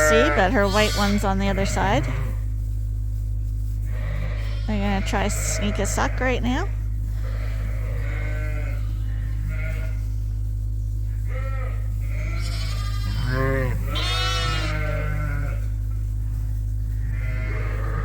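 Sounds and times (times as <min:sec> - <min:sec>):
sheep bleating: 0:00.0 - 0:02.4, 0:03.9 - 0:10.1, 0:11.2 - 0:15.7, 0:17.0 - 0:18.0
steady low hum: 0:00.0 - 0:18.0.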